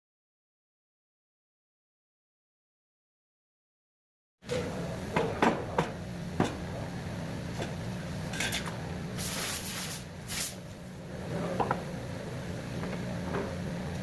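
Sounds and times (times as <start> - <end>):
steady low hum: 4.4 - 14.0.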